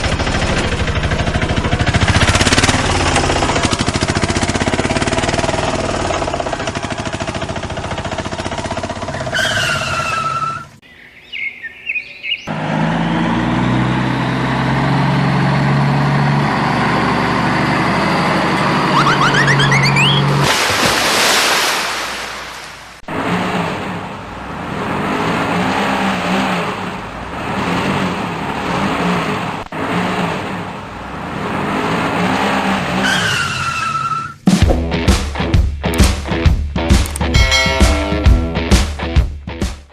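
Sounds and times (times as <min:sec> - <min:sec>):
vehicle engine: 0:00.0 - 0:10.8, 0:12.2 - 0:20.8, 0:22.8 - 0:38.8
rising whistles: 0:18.6 - 0:20.4.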